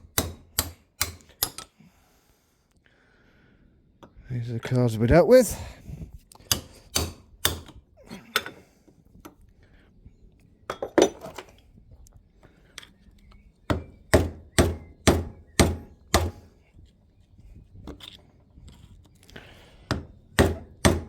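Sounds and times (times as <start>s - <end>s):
hammer striking chisel: 0.0s - 1.6s, 6.5s - 7.7s, 13.7s - 16.5s, 19.9s - 21.0s.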